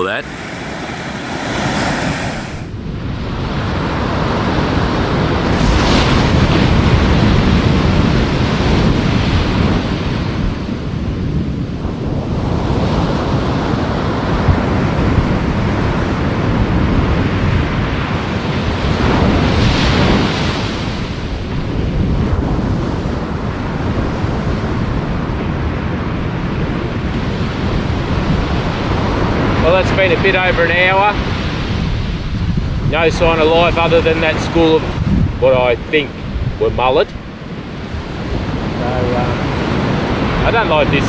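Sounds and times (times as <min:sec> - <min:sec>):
waves breaking on beach: 0:00.0 - 0:02.7
wind buffeting microphone: 0:00.0 - 0:02.7, 0:32.4 - 0:36.8.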